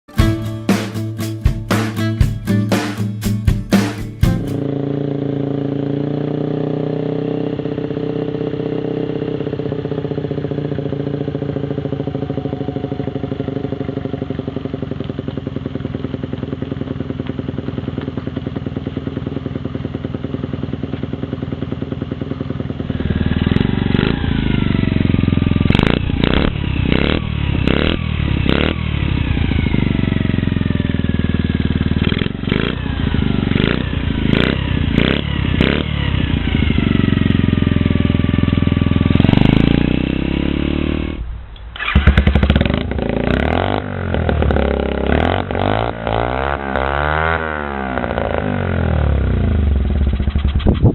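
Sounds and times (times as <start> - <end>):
motorbike throttle blips: 3.8 - 50.9
mini-bike engine idling: 4.6 - 40.1, 47.9 - 50.9.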